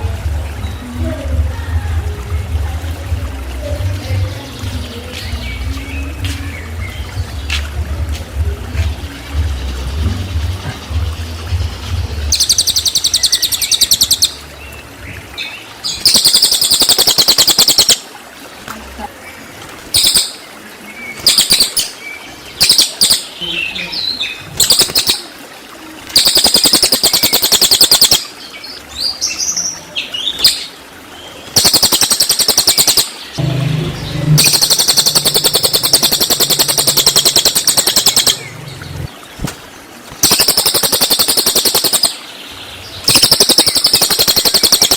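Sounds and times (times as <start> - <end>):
bird song with rapid high notes: 8.8 - 18.0, 20.0 - 25.2, 26.2 - 29.5, 31.6 - 39.2, 40.2 - 44.9
bird chirps: 12.3 - 14.4, 16.0 - 18.0, 20.0 - 20.4, 21.2 - 21.9, 22.6 - 23.6, 26.2 - 28.2, 31.6 - 38.9, 40.2 - 42.2, 43.1 - 44.9.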